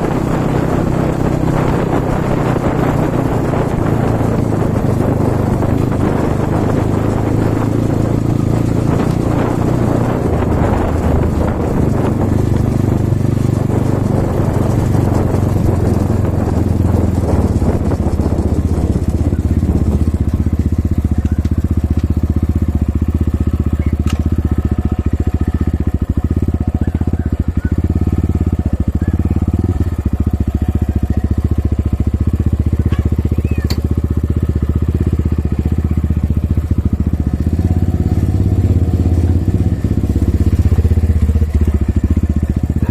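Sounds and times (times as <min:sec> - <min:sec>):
motorcycle engine running: 0:00.0 - 0:42.9
wind noise: 0:00.0 - 0:42.9.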